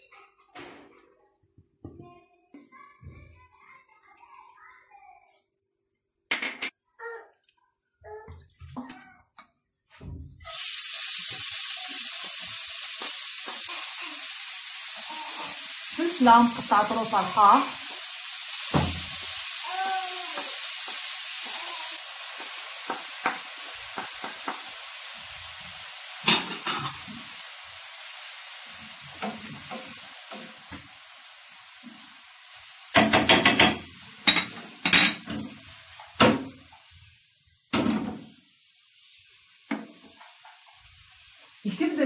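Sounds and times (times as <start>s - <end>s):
vegetables sizzling in a pan: 10.0s - 42.0s
wooden spoon knocking on pan: 18.7s - 19.2s, 20.3s - 21.6s, 22.3s - 24.7s, 32.9s - 36.6s, 39.7s - 40.7s.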